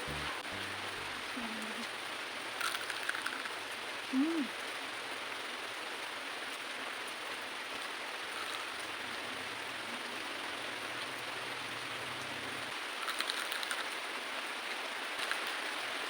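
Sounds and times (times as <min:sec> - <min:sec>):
hot oil sizzling: 0:08.2 - 0:13.9.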